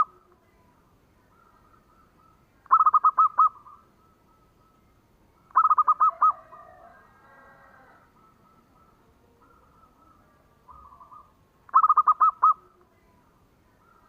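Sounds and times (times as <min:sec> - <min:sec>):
faint bird calls: 0:00.0 - 0:14.0
dove cooing: 0:01.2 - 0:04.8, 0:05.4 - 0:12.9.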